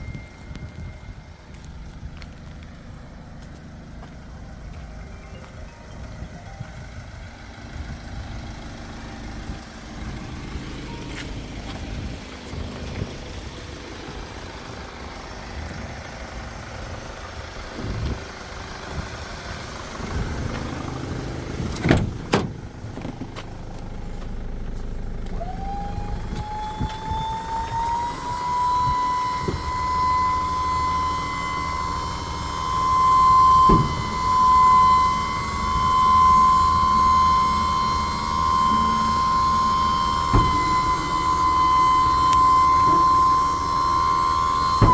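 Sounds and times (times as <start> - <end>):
diesel van engine rumbling: 0.0 - 44.9
high-pitched whine: 0.0 - 44.9
sharp engine knocks: 21.6 - 23.5.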